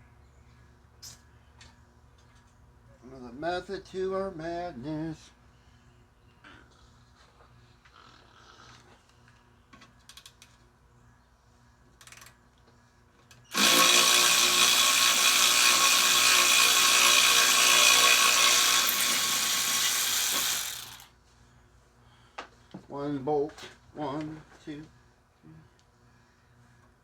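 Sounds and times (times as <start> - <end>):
power tool turning a bolt: 13.5 - 21.1.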